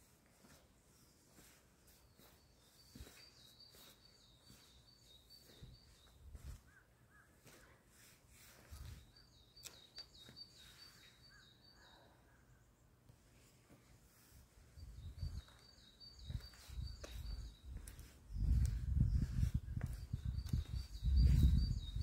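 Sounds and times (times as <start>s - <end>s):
bird chirping: 1.8s - 7.6s, 8.6s - 13.0s, 14.7s - 22.0s.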